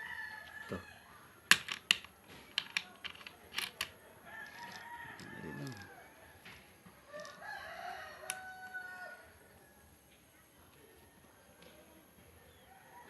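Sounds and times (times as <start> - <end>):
rooster crowing: 0.0 - 1.2, 4.3 - 6.2, 7.1 - 9.4.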